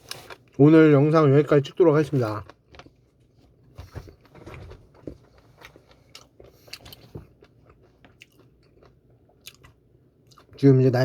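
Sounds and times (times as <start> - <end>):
faint chewing: 2.2 - 10.6.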